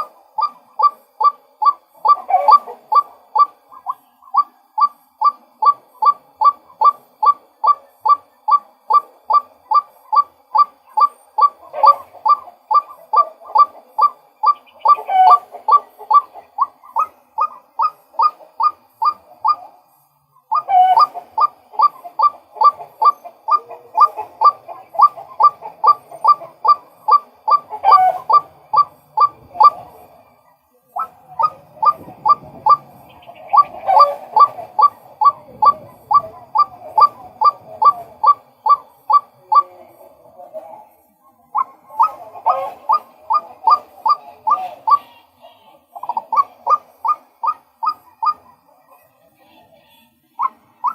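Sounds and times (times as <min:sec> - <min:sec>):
lower bird calls: 0:00.0 - 0:49.2, 0:50.2 - 0:50.9
waterhen calling sharp kwak notes: 0:41.6 - 0:48.6, 0:50.4 - 0:50.9.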